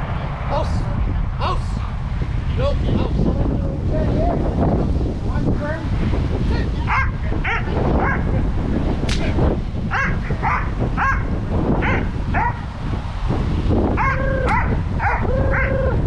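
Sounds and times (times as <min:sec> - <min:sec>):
wind buffeting microphone: 0:00.0 - 0:16.0
dog barking: 0:06.9 - 0:08.3, 0:09.9 - 0:12.7, 0:14.0 - 0:15.7.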